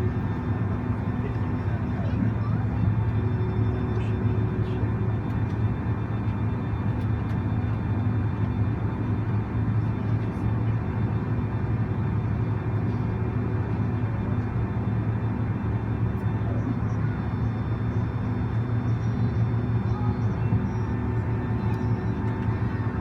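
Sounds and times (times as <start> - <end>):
aircraft cabin hum: 16.3 - 23.0.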